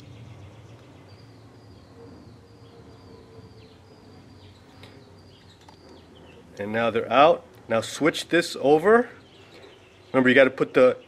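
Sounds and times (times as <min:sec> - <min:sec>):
low hum: 0:00.0 - 0:07.8
bird chirping: 0:00.0 - 0:11.0.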